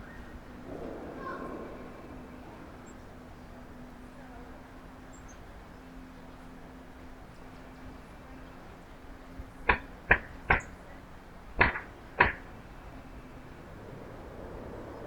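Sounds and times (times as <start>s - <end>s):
sharp knocks: 9.7s - 10.8s, 11.6s - 12.6s.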